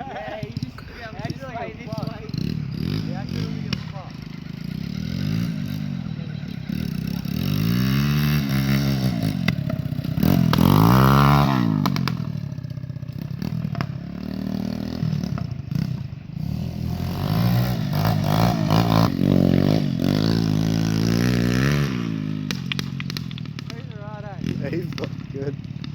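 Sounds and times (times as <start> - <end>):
pit bike engine revving: 0.0 - 25.9.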